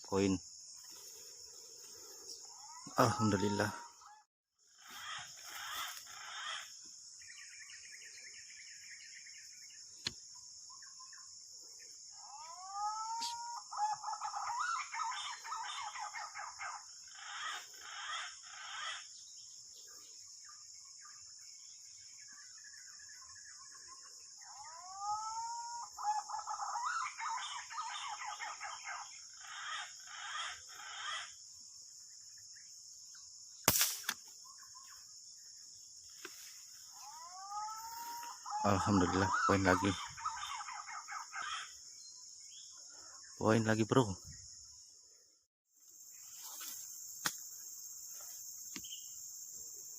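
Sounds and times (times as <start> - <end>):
bird calling with harsh notes: 1.8 - 8.4, 12.2 - 19.5, 22.3 - 31.4, 36.1 - 44.6.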